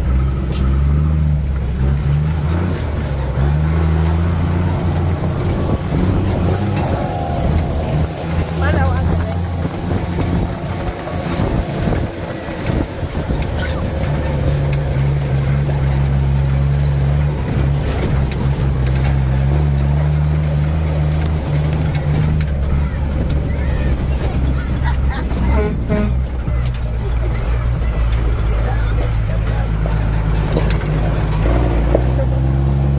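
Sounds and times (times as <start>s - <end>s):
truck engine humming: 0.0s - 32.9s
higher drone: 3.6s - 17.6s.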